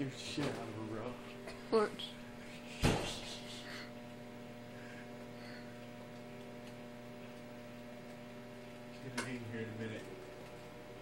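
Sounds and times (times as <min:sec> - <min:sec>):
microwave oven humming: 0:00.0 - 0:11.0
sharp thump: 0:02.8 - 0:03.2.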